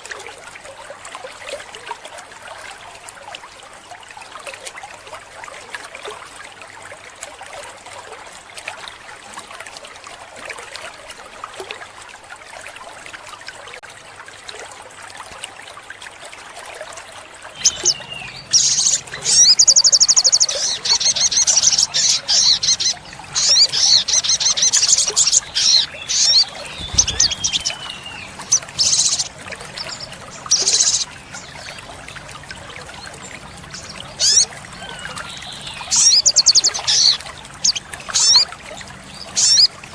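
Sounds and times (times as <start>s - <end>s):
bird trills and chirps: 17.6s - 32.0s, 33.6s - 38.5s, 39.1s - 39.7s.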